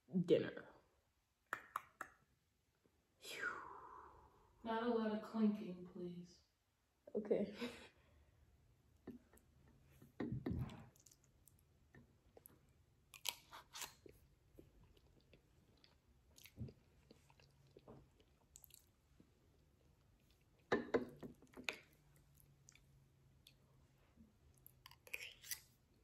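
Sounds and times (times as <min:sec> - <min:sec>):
chewing and mouth sounds: 0:12.3 - 0:20.7, 0:21.4 - 0:23.6.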